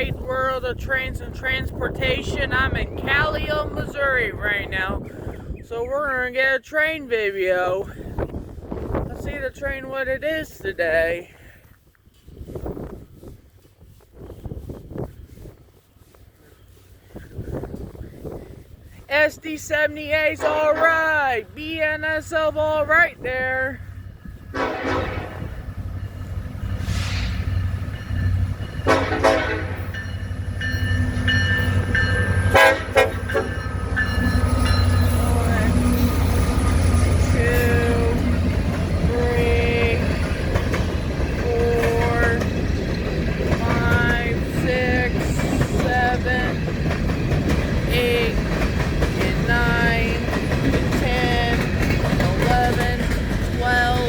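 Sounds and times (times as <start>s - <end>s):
locomotive engine rumble: 0.0s - 54.0s
train air horn blasts: 24.5s - 25.6s, 28.8s - 29.9s, 31.8s - 33.6s.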